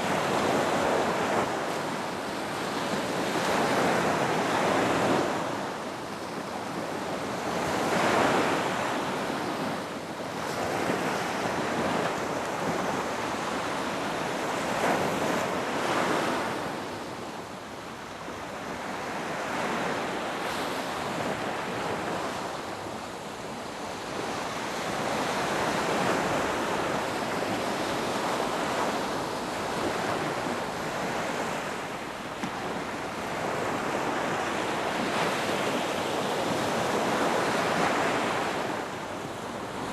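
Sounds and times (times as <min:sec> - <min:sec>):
ocean waves breaking on a beach: 0:00.0 - 0:39.9.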